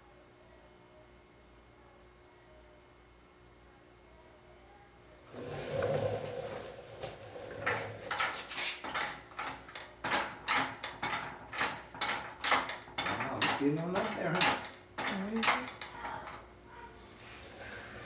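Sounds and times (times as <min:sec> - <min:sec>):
jack stand rattling: 0:05.4 - 0:16.5.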